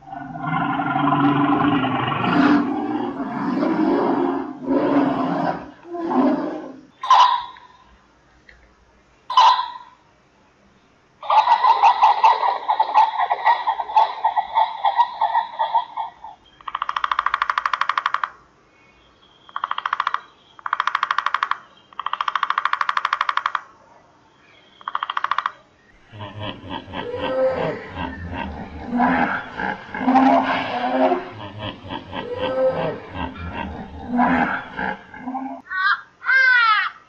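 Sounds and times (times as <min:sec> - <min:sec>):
hippopotamus calling: 0:00.0 - 0:07.8, 0:26.0 - 0:35.7
pheasant calling: 0:07.0 - 0:07.8, 0:09.3 - 0:09.9
woodpecker drumming on wood: 0:16.5 - 0:18.5, 0:19.5 - 0:23.8, 0:24.8 - 0:25.6.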